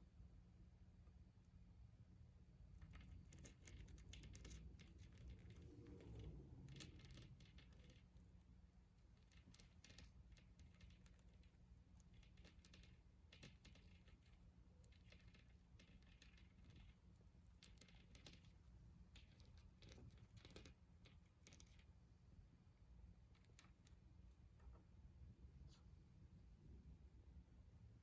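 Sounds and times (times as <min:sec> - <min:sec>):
low steady hum: 0:00.0 - 0:28.0
faint small clicks and scratches: 0:02.6 - 0:22.2, 0:23.0 - 0:25.0.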